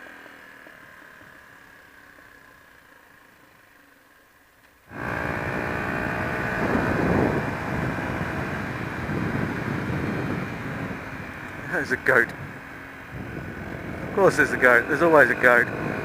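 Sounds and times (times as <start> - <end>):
motorcycle engine running: 0.0 - 16.0
wind rush over microphone: 4.9 - 16.0.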